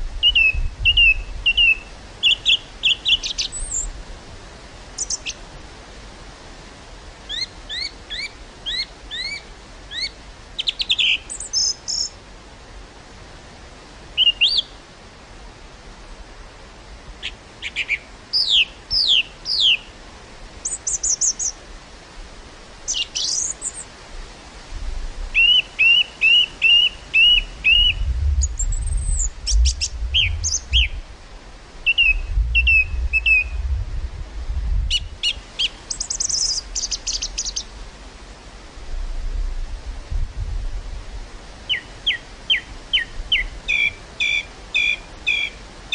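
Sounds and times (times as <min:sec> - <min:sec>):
wind rumble on microphone: 0:00.0 - 0:02.6, 0:24.0 - 0:25.4, 0:27.1 - 0:41.6
songbirds singing and calling: 0:00.2 - 0:03.9, 0:05.0 - 0:05.4, 0:07.3 - 0:12.2, 0:14.2 - 0:14.8, 0:17.2 - 0:20.0, 0:20.6 - 0:21.6, 0:22.9 - 0:23.9, 0:25.4 - 0:31.0, 0:31.8 - 0:33.6, 0:34.9 - 0:37.8, 0:41.7 - 0:45.9.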